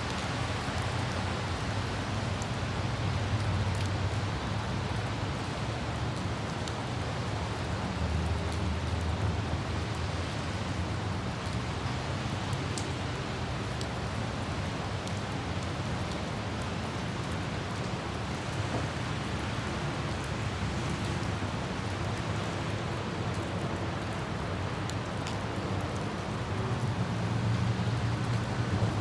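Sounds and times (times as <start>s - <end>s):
light rain: 0.0s - 29.0s
vehicle and road noise rumble: 13.0s - 29.0s.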